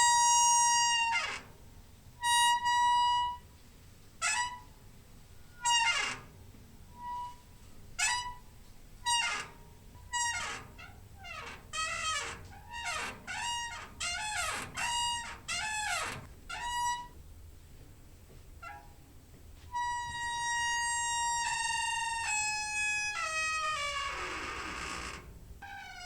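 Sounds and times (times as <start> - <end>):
door hinge squeaking: 4.2 - 4.7, 5.5 - 17.2, 18.6 - 19.0, 19.8 - 26.0.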